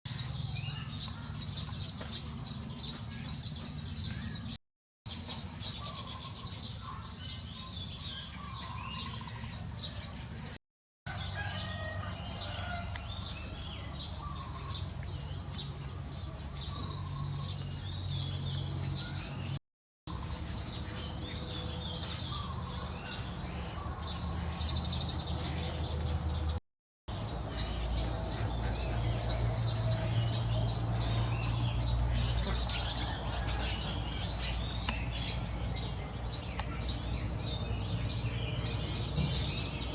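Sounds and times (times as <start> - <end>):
lower bird calls: 11.4 - 39.9.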